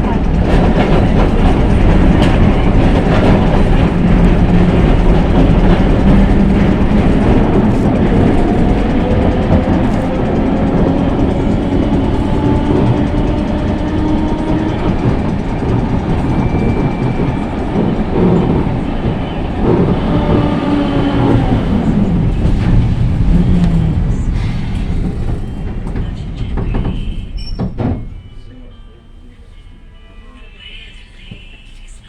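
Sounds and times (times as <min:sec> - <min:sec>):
tram motor whine: 0:00.0 - 0:32.0
wheel on rail rumble: 0:00.0 - 0:32.0.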